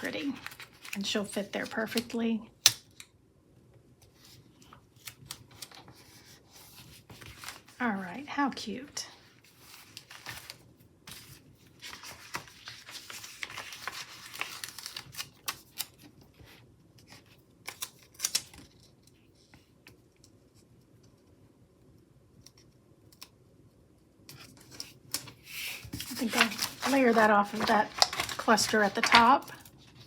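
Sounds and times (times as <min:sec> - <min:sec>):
paper rustling: 0:00.0 - 0:02.1, 0:04.0 - 0:07.9, 0:09.3 - 0:19.6, 0:24.4 - 0:30.0.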